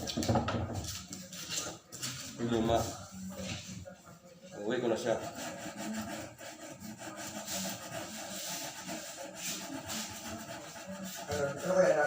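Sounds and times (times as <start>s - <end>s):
sandpaper rubbing on wood: 4.8s - 12.0s.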